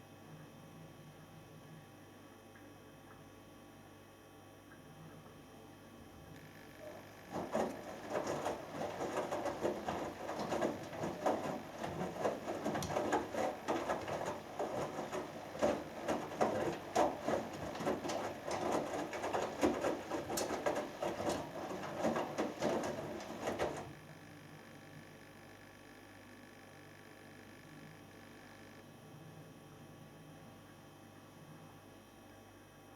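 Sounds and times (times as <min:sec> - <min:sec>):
laundry and water sloshing: 0:06.8 - 0:24.0
washing machine drum turning: 0:06.8 - 0:24.0.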